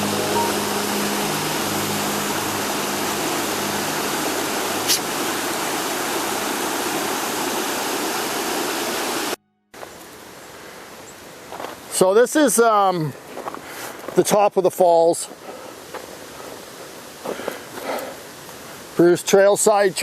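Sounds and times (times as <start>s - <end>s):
waterfall rushing: 0.0s - 9.4s
quiet outdoor noise: 0.0s - 20.0s.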